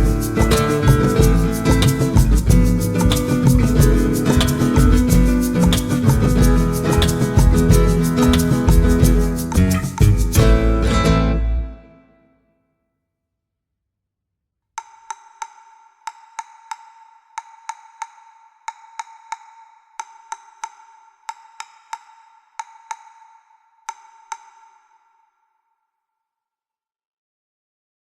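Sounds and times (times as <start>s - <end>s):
wood-block percussion taps: 0.0s - 10.6s.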